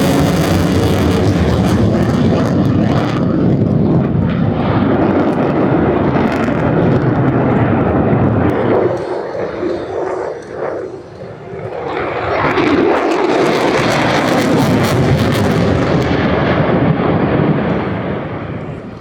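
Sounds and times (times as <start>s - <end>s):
jet aircraft passing: 0.0s - 19.0s.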